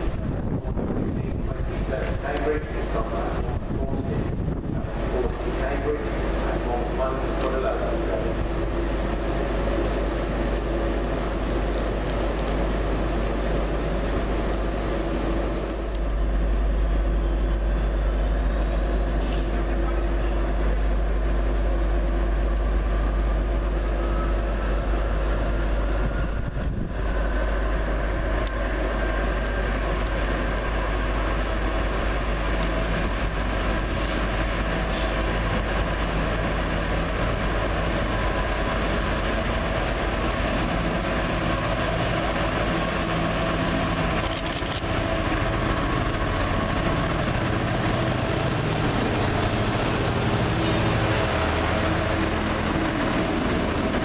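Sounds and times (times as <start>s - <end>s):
train engine rumbling: 0.0s - 54.0s.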